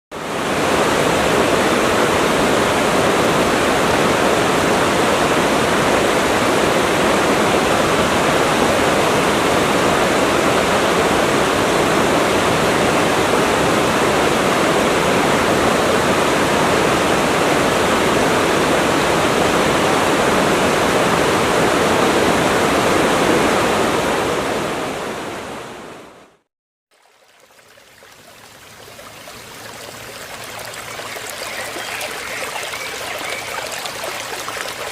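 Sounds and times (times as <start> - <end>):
waterfall rushing: 28.2 - 34.9.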